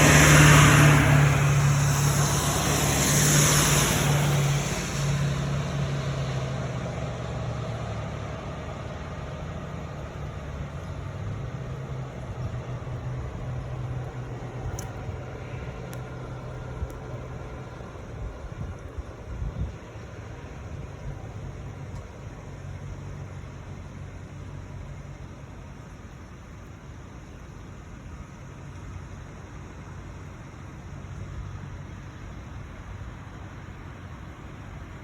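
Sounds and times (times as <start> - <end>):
tyre or traffic hiss: 0.0 - 6.8
vehicle engine humming: 0.0 - 35.0.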